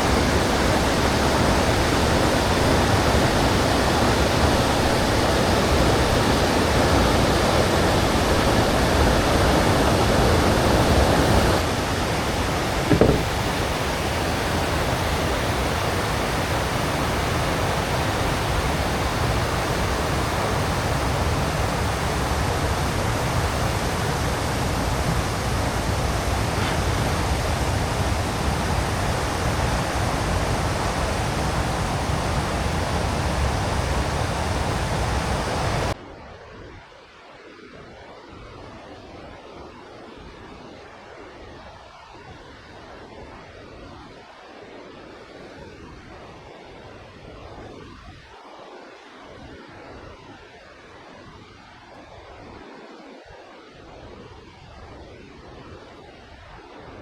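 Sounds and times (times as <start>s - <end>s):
water rushing over weir: 0.0s - 36.0s
brief knock: 12.9s - 13.5s.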